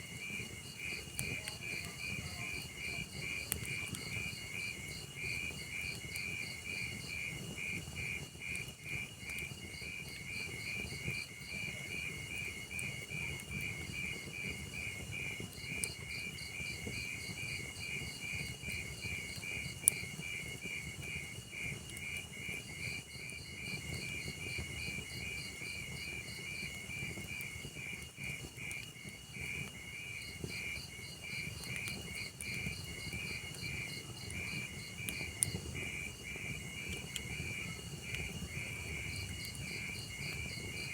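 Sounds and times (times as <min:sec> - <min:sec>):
fire crackle: 0:00.0 - 0:40.9
log fire burning: 0:00.0 - 0:40.9
crickets chirping: 0:15.6 - 0:40.9.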